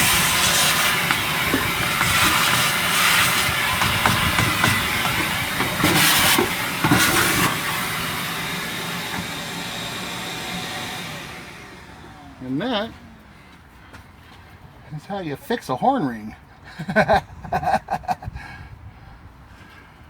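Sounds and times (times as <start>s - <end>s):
nozzle knocking and rattling: 0.0s - 8.2s
shop vacuum running: 0.0s - 13.7s.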